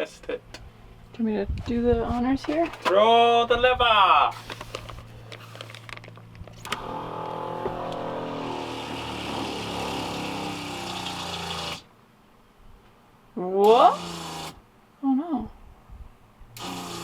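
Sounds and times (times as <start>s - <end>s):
water pump running: 6.6s - 11.9s, 13.7s - 14.6s, 16.6s - 17.0s.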